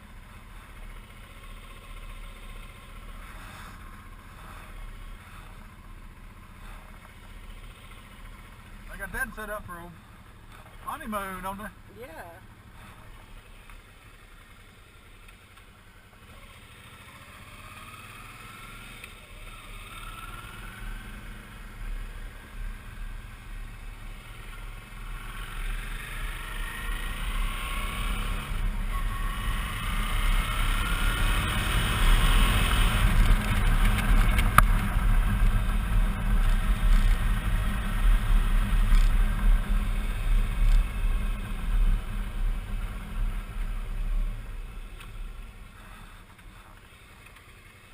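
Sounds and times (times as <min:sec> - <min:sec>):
motorcycle engine accelerating: 0:12.2 - 0:47.9.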